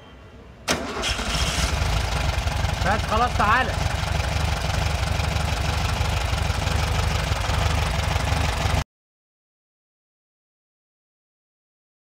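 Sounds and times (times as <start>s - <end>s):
car engine idling: 0.8s - 8.8s.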